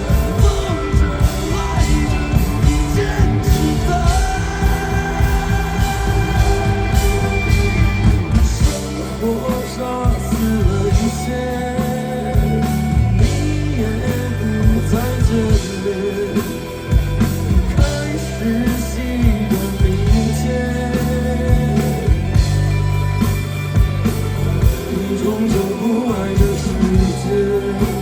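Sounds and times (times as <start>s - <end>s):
person singing: 0.0s - 16.6s
drums striking: 0.0s - 28.0s
live rock band playing: 0.0s - 28.0s.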